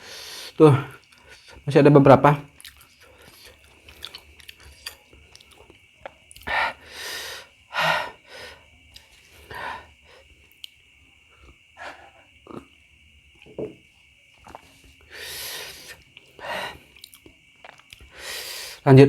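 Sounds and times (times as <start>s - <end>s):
sharp breaths and hisses through mouth: 14.4s - 17.0s, 18.0s - 18.8s.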